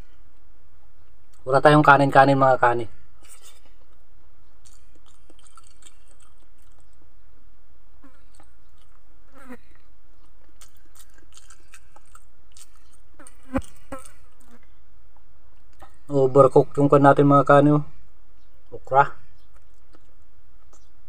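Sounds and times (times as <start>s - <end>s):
steady low hum: 0.0s - 21.0s
person chewing and lip-smacking: 4.6s - 7.0s, 8.0s - 14.7s, 15.6s - 16.1s, 19.4s - 20.9s.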